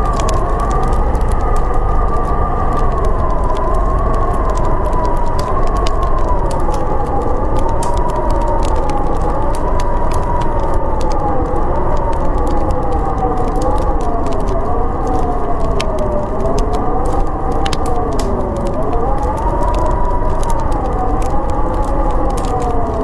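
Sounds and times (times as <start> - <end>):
low rumble: 0.0 - 10.2
snowstorm wind howling: 0.0 - 23.0
wood fire crackling and popping: 0.0 - 23.0.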